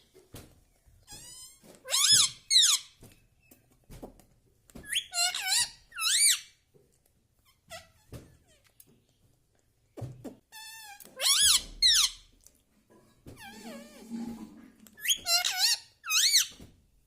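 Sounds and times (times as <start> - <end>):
parakeet squawking and chattering: 1.2 - 2.9, 4.9 - 6.5, 10.6 - 12.3, 14.9 - 16.6.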